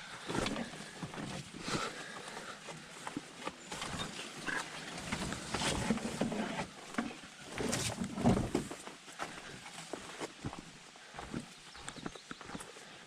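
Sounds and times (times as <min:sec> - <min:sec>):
footsteps on dirt trail: 0:00.0 - 0:13.0.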